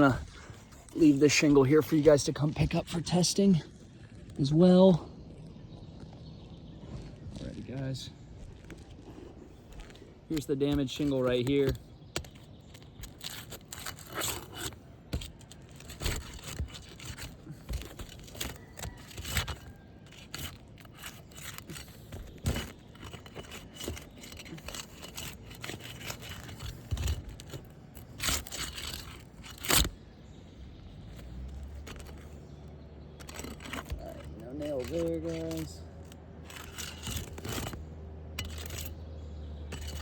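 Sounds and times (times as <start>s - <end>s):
roof shingles scraping and crackling: 0.0s - 5.0s, 7.2s - 40.0s
shingles snapping: 9.7s - 30.1s, 30.7s - 39.0s, 39.7s - 40.0s.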